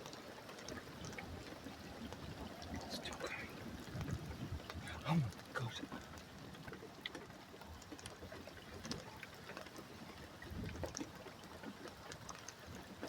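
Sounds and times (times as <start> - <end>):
water drips and ticks: 0.0 - 13.0
low hiss: 1.6 - 6.3.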